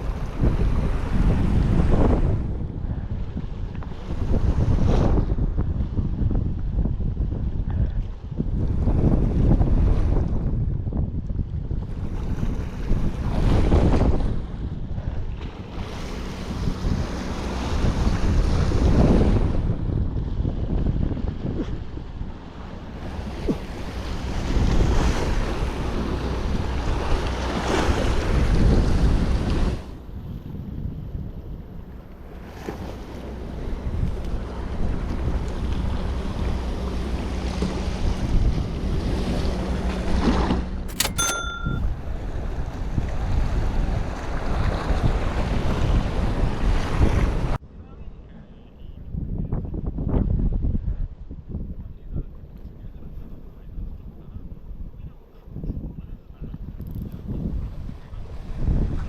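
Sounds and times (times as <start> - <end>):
sea surf: 0.0 - 2.4, 21.8 - 30.7, 41.2 - 47.6
wind rumble on microphone: 0.0 - 59.0
sea waves washing in: 11.9 - 19.9, 21.8 - 47.6
sharp click with ringing tone: 40.9 - 42.0.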